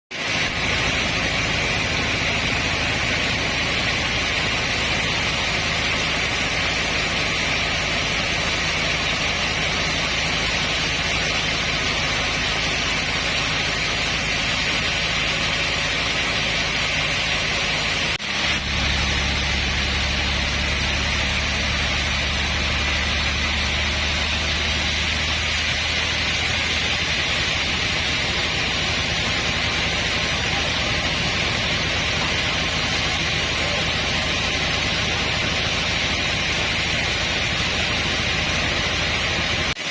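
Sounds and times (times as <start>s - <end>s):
sawmill machinery hissing whir: 0.2s - 39.9s
low engine hum: 0.3s - 39.8s.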